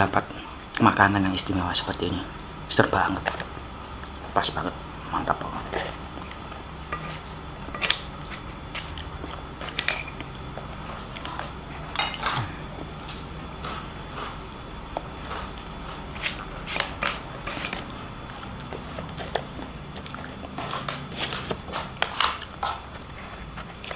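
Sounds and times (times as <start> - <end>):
steady low hum: 0.0 - 23.9
person chewing food: 3.2 - 23.9.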